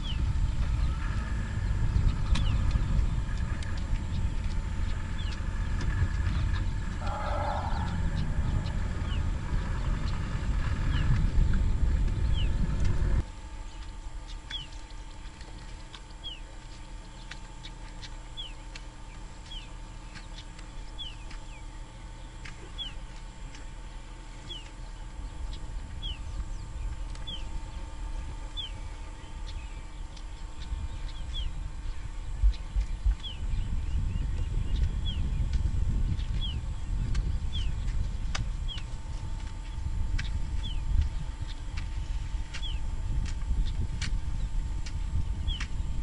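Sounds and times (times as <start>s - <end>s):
loud low rumble: 0.0s - 13.5s
low rustling with thumps: 0.0s - 17.6s
faint steady hum: 0.0s - 46.0s
bird call high downward-sliding: 6.6s - 10.2s.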